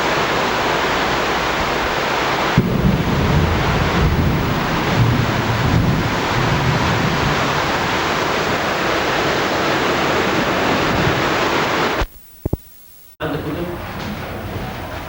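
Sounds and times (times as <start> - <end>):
loud rushing noise: 0.0 - 12.0
faint clicks: 12.0 - 13.2.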